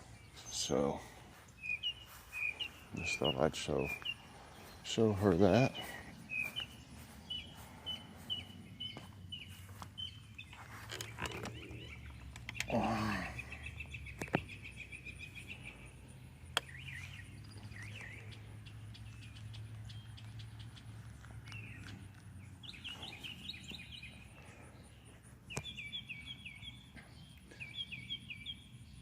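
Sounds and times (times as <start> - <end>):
birds chirping: 0.0 - 29.0
bird trilling: 1.6 - 4.8.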